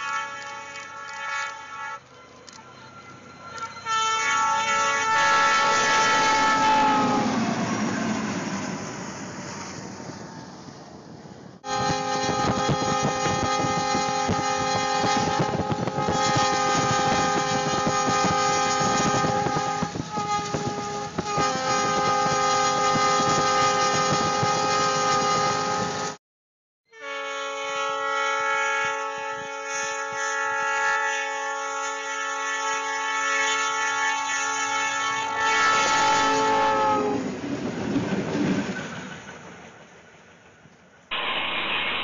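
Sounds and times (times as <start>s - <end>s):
train horn chord: 0.0s - 7.7s, 11.6s - 26.2s, 26.9s - 37.3s
wind noise: 5.7s - 26.2s.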